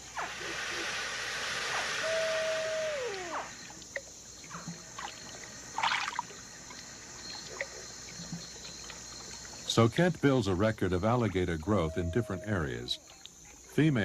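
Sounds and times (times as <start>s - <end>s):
splash: 0.0s - 6.8s
night insects buzzing: 0.0s - 14.0s
baby alligator distress call: 1.8s - 3.6s, 11.6s - 13.0s
water sloshing: 3.3s - 9.8s.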